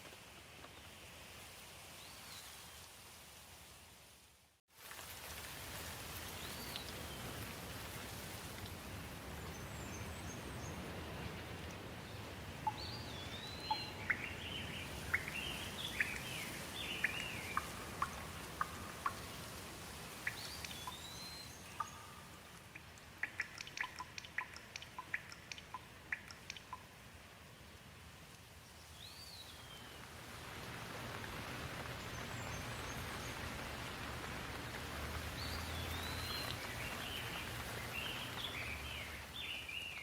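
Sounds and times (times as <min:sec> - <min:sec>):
steady rain hiss: 0:00.0 - 0:40.0
sharp water drips: 0:04.8 - 0:09.6, 0:11.2 - 0:27.2, 0:30.0 - 0:40.0
small birds chirping: 0:12.1 - 0:19.6, 0:20.2 - 0:26.9, 0:35.2 - 0:40.0.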